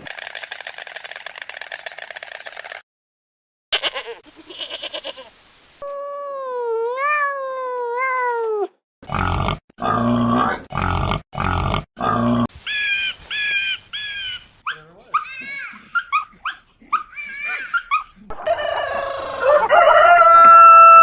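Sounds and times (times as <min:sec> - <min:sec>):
loud harsh animal calls: 0:12.5 - 0:21.0
high yip: 0:14.2 - 0:18.5.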